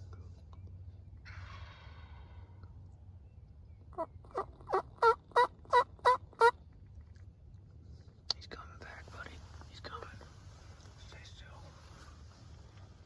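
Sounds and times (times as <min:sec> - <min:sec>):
turkey yelping: 0:04.0 - 0:06.5.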